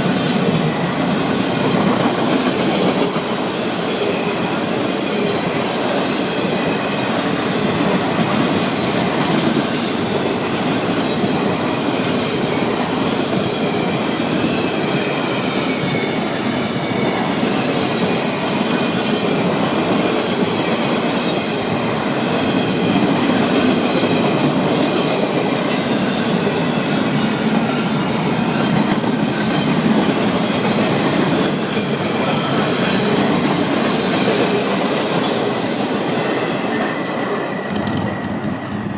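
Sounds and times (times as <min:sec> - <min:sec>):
train wheels rumbling on rails: 0:00.0 - 0:38.9
wheels clicking over rail joints: 0:37.6 - 0:38.9.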